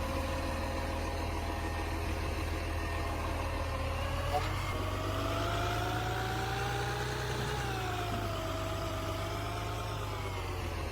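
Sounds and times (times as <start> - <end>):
garbage truck engine idling: 0.0 - 5.1.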